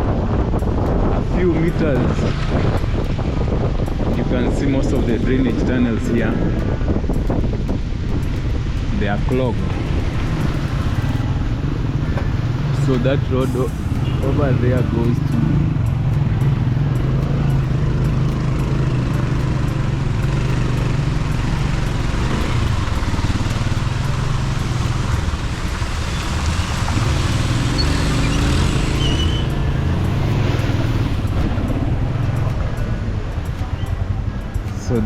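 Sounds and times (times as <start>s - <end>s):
road noise rushing: 0.0s - 35.0s
motorbike engine running: 14.0s - 35.0s.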